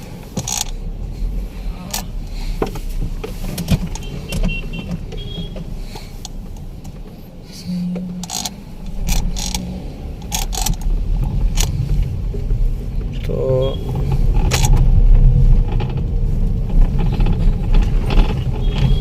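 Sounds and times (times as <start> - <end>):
road rumble inside car: 0.0 - 19.0.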